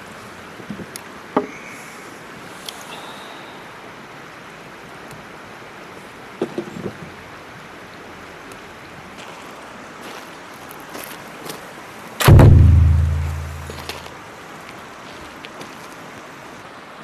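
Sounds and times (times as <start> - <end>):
cluster of knocks: 12.2 - 13.9.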